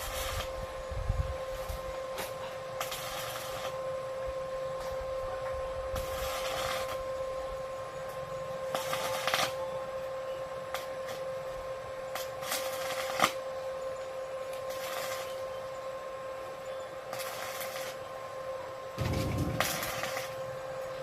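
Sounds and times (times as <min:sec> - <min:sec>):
welding arc hissing and crackling: 0:00.0 - 0:21.0
welding machine electrical hum: 0:00.0 - 0:21.0.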